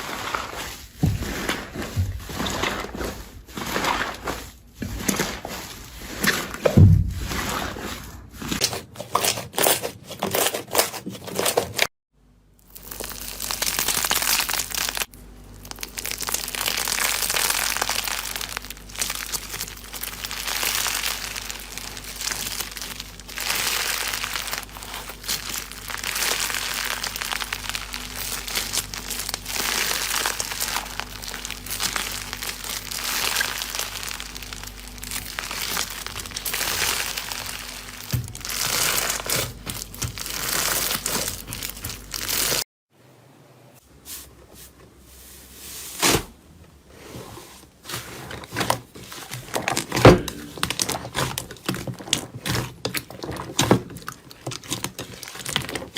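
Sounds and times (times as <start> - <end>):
slime squeezed and crackling: 12.7 - 42.6, 50.6 - 55.9.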